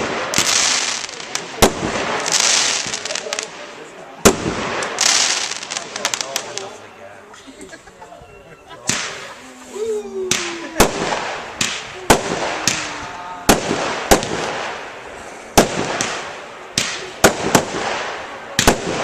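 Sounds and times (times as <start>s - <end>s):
crackling hiss: 0.0s - 7.7s, 8.8s - 19.0s
fireworks shells bursting: 10.3s - 19.0s.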